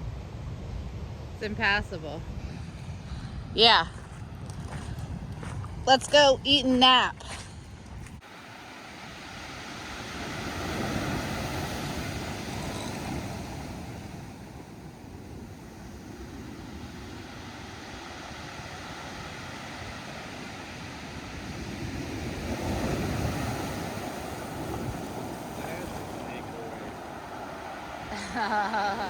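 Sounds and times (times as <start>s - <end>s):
wind on microphone: 0.0s - 8.3s, 9.0s - 29.0s
ocean surf washing onto beach: 8.2s - 29.0s.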